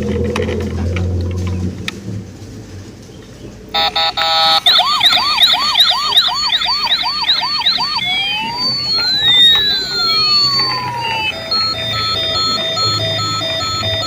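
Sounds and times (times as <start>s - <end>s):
toy siren yelping and wailing: 3.8s - 14.0s.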